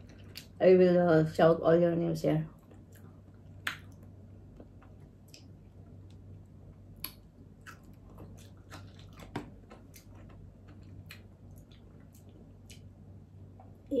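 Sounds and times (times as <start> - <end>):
steady low hum: 0.0 - 14.0
chewing with wet mouth clicks: 2.6 - 6.3, 6.9 - 13.0.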